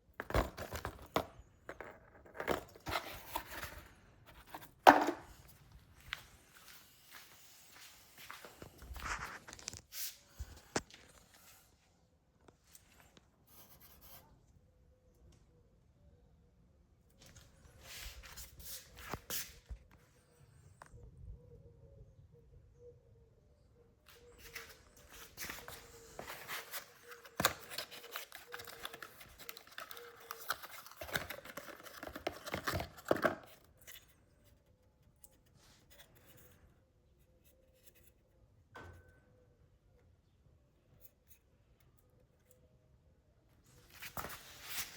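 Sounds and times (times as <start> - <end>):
rustling packaging: 24.2 - 34.2.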